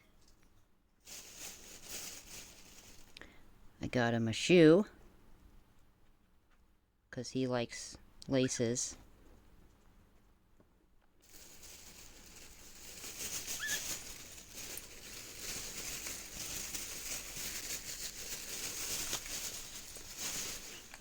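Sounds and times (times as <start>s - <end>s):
rustling and crinkling handling: 0.0s - 3.3s, 9.1s - 21.0s.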